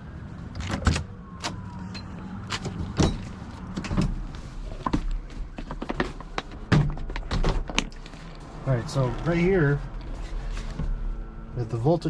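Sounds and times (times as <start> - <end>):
knocks and clunks of handling: 0.6 - 8.2.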